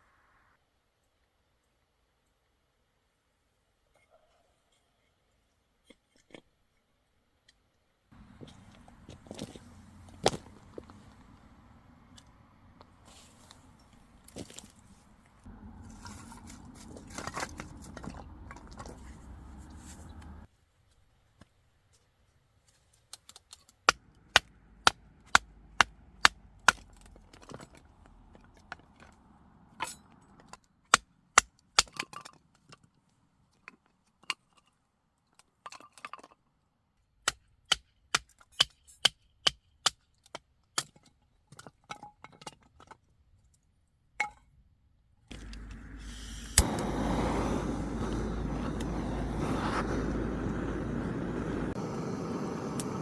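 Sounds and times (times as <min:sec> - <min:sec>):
rushing noise: 0:08.2 - 0:20.5, 0:45.3 - 0:53.0.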